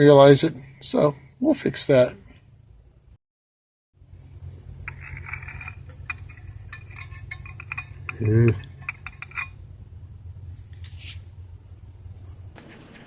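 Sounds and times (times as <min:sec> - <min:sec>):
steady low hum: 0:00.0 - 0:03.2, 0:04.0 - 0:12.6
metal parts and tools clinking: 0:04.8 - 0:09.6.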